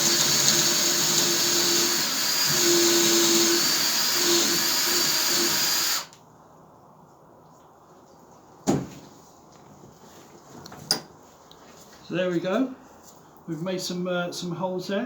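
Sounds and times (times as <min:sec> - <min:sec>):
power drill boring into log: 0:00.0 - 0:06.1.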